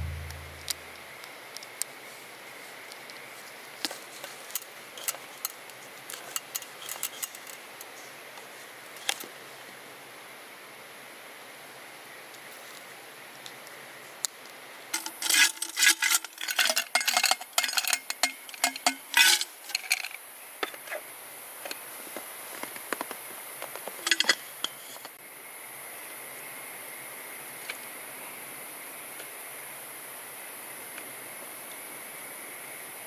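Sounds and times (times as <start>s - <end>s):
metal cookware clattering: 15.0s - 20.1s.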